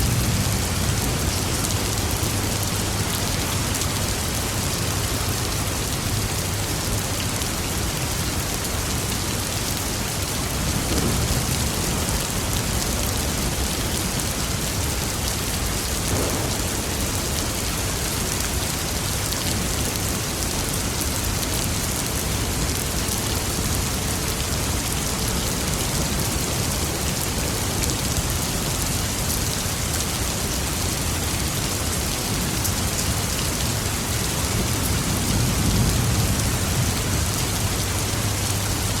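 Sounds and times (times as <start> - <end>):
heavy rain falling: 0.0 - 39.0
low thunder rumble: 10.5 - 15.1, 15.7 - 19.0.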